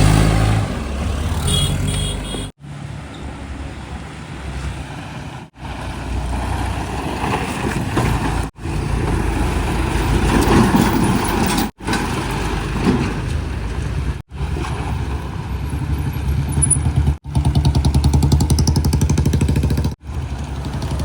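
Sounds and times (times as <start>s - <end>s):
heavy diesel engines running: 0.0s - 21.0s.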